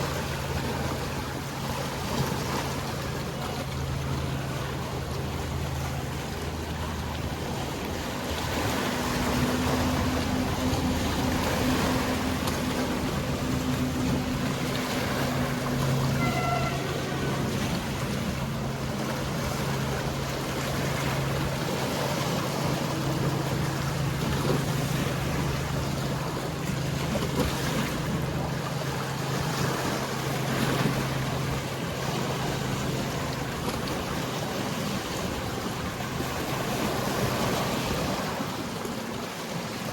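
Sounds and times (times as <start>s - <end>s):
boat engine humming: 0.0s - 39.9s
sea waves washing: 0.0s - 39.9s
brief high note: 15.9s - 17.8s.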